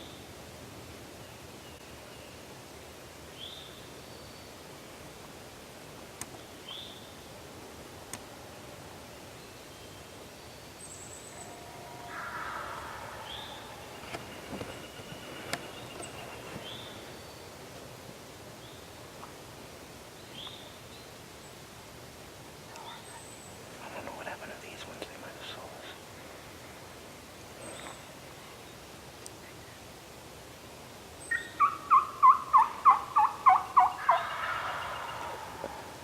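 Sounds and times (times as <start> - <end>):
distant rough bird call: 11.4 - 16.8.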